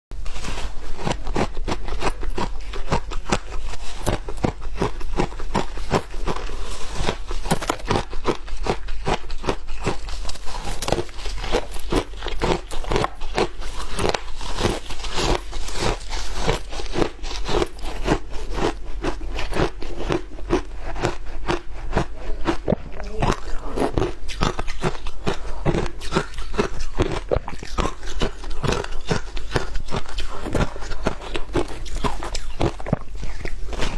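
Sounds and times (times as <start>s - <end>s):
person chewing shaved ice: 0.1s - 33.9s.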